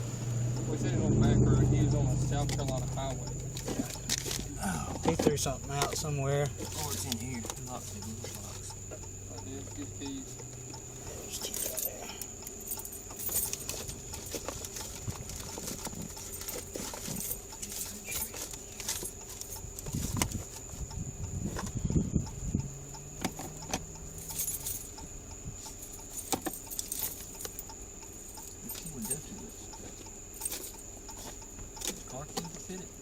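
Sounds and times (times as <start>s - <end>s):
faint high whine: 0.0s - 13.6s
keys jangling: 11.3s - 20.2s, 23.4s - 25.0s, 25.6s - 27.7s, 28.3s - 29.4s, 30.4s - 31.2s.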